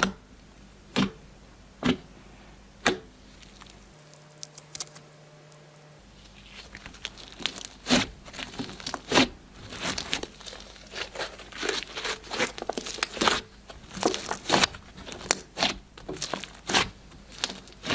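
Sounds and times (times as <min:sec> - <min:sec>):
slime squished by hand: 0:06.4 - 0:17.9.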